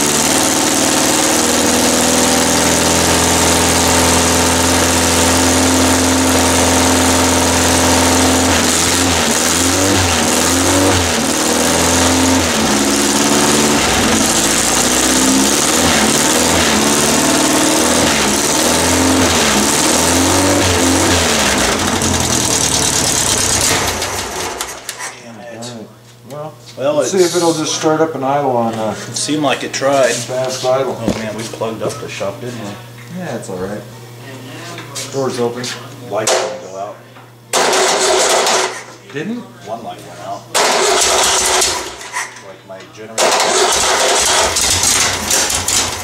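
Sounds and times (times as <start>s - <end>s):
engine running unevenly: 0.0s - 25.0s, 43.2s - 46.0s.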